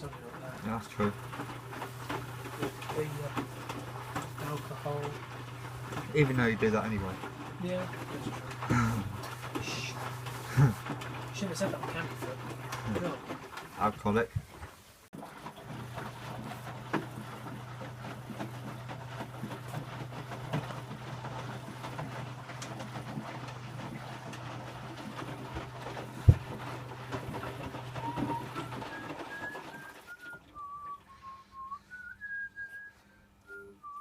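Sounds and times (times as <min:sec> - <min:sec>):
low motor hum: 0:00.0 - 0:14.5, 0:15.2 - 0:34.0
washing machine drum sloshing: 0:00.0 - 0:32.9
person whistling a tune: 0:28.0 - 0:34.0.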